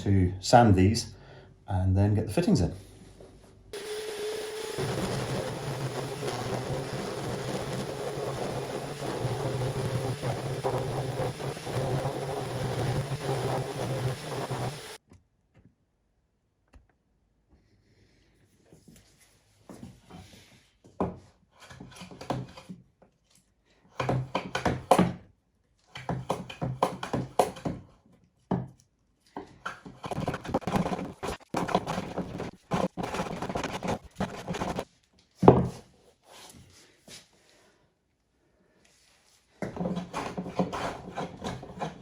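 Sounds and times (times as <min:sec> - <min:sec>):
wood being sanded: 0:03.8 - 0:15.0.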